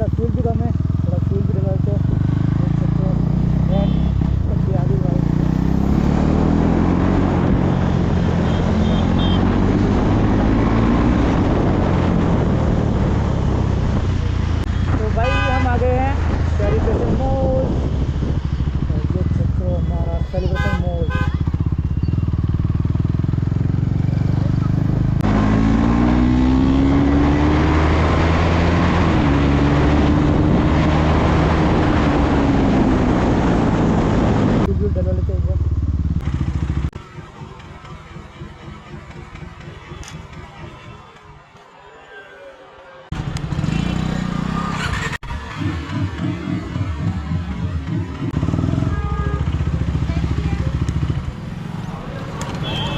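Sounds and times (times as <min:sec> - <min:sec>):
motorcycle engine accelerating: 0:00.0 - 0:15.1, 0:16.0 - 0:40.9, 0:43.1 - 0:52.9
wind and road noise: 0:00.0 - 0:52.9
wind rushing: 0:09.6 - 0:14.7, 0:16.1 - 0:19.0.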